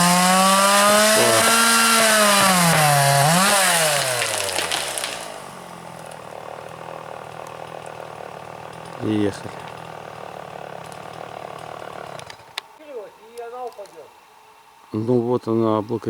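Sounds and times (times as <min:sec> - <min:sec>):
chainsaw running: 0:00.0 - 0:13.4.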